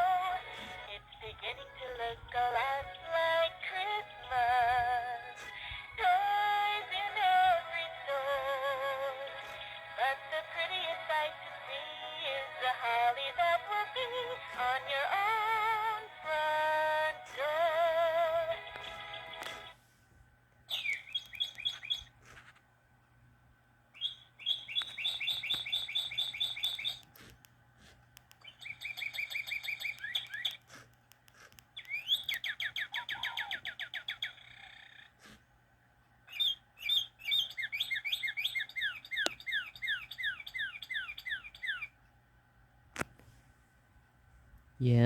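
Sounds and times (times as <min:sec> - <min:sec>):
toy bird chirps: 0:20.7 - 0:22.2, 0:24.0 - 0:27.2, 0:28.4 - 0:30.8, 0:31.8 - 0:35.2, 0:36.3 - 0:42.0.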